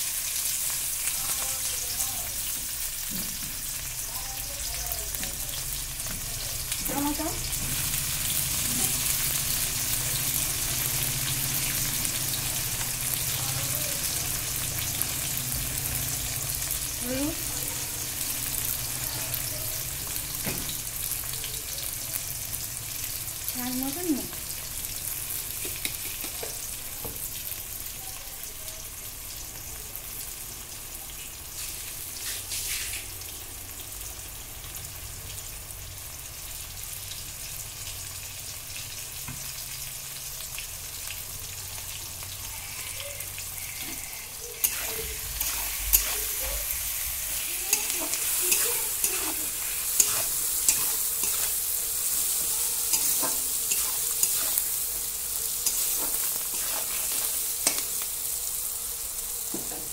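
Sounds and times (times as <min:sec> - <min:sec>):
onions and spices sizzling in oil: 0:00.0 - 0:59.9
metal spoon scraping a pan: 0:43.5 - 0:58.0.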